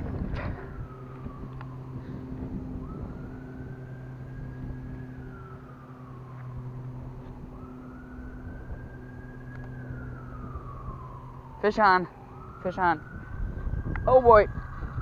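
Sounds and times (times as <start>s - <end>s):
siren wailing: 0.0s - 15.0s
steady low hum: 0.0s - 15.0s.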